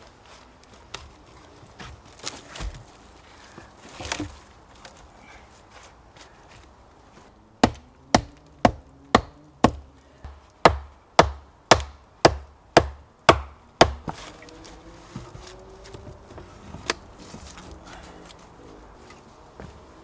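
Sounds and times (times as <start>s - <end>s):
tool striking wood: 7.6s - 14.2s.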